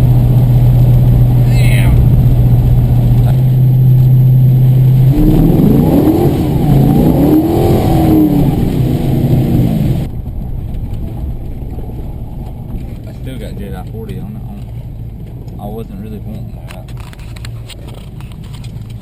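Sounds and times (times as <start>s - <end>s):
car cabin hum: 0.0s - 19.0s
rumbling road noise: 0.0s - 19.0s
rising and falling tones: 1.0s - 10.1s.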